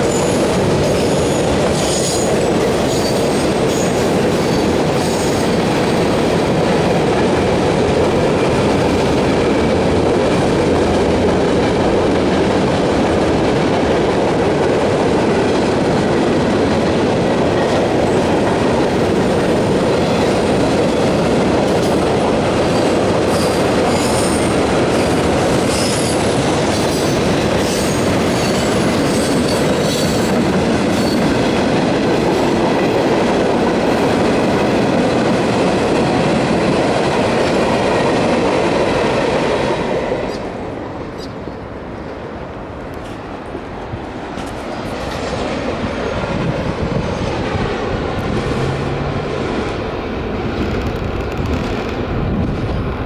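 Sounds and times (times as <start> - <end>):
train wheels rumbling on track: 0.0 - 53.0.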